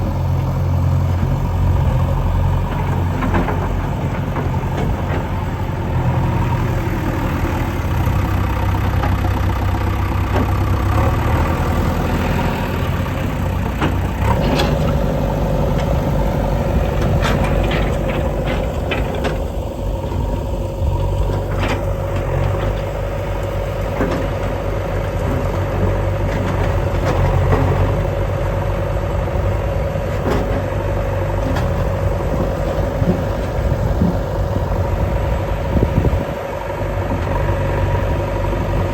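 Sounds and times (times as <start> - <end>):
engine rumbling: 0.0 - 38.9
steady whine: 14.4 - 24.2.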